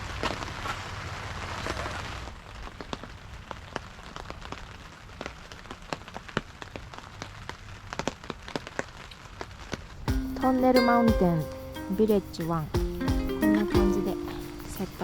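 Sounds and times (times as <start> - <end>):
rain hiss: 8.6 - 15.0.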